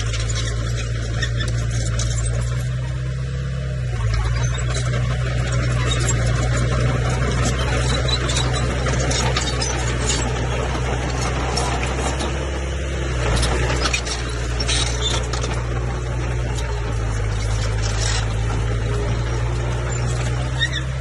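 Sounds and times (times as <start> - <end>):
bulldozer diesel engine running: 0.0 - 21.0
tracks clanking and knocking: 4.0 - 12.6, 13.2 - 21.0.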